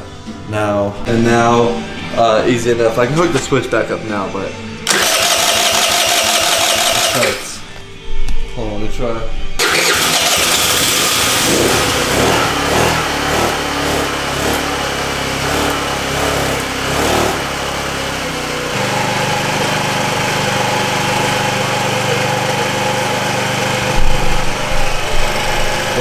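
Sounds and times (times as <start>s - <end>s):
scooter engine idling unevenly: 4.8s - 7.8s, 9.6s - 26.0s.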